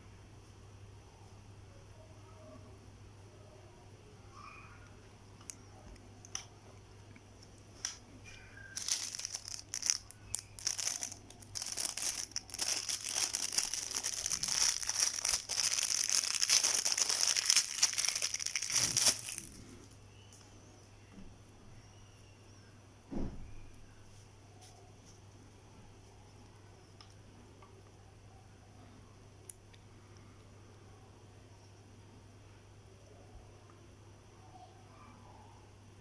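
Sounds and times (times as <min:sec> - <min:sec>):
plastic film crinkling and tearing: 0:08.8 - 0:19.6.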